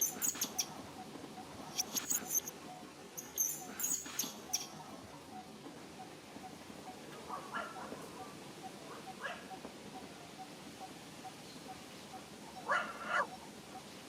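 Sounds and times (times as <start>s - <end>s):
baby monkey squeaking: 0.0s - 0.7s, 3.2s - 4.7s.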